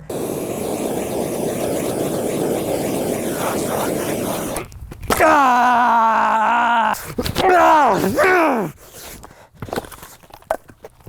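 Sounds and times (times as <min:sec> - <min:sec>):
propane torch burning: 0:00.0 - 0:07.8.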